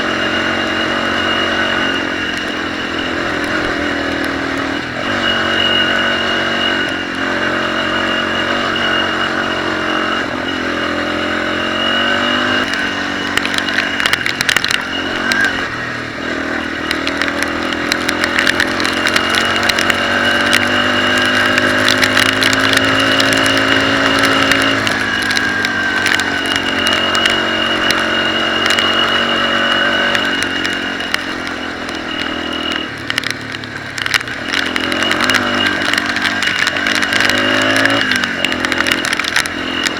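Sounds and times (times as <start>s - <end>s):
dirt bike engine revving: 0.0s - 39.9s
clicks and clatter: 12.1s - 39.9s.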